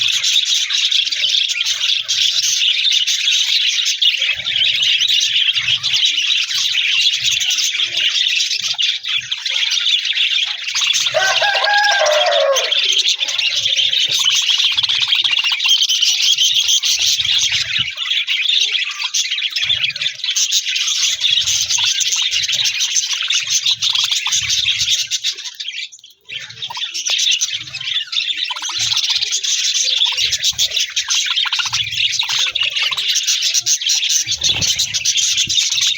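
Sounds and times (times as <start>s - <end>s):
budgerigars chattering and chirping: 0.0s - 35.9s
bird call with falling pitch: 11.0s - 13.7s.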